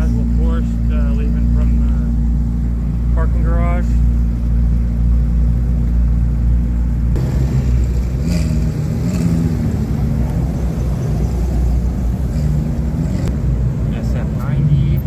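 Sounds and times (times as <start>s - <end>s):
sports car engine rumbling: 0.0s - 15.0s.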